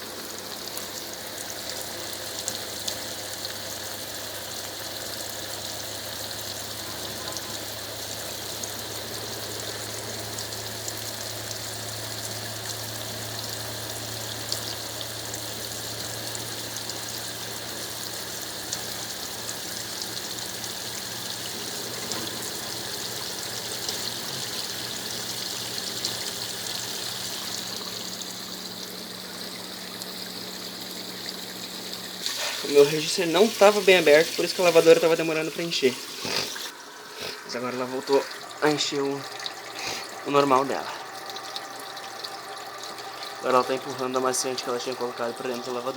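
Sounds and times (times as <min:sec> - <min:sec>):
water running into washing machine: 0:00.0 - 0:45.9
low machine hum: 0:36.7 - 0:45.9.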